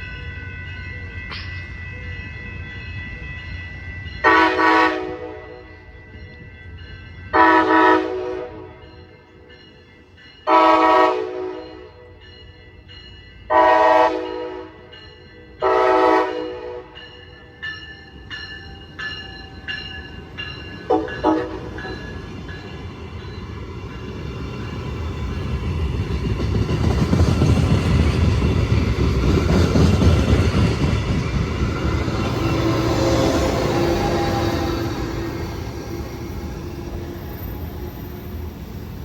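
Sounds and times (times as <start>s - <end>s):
train air horn blasts: 4.2s - 5.6s, 7.4s - 8.7s, 10.5s - 11.9s, 13.5s - 14.8s, 15.6s - 17.0s, 20.9s - 21.7s, 32.3s - 35.6s.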